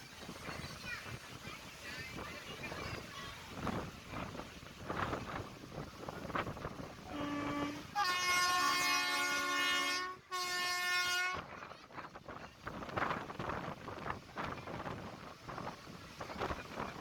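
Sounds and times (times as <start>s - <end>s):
moving train rumble: 0.0s - 17.0s
locomotive horn blasts: 7.1s - 11.5s.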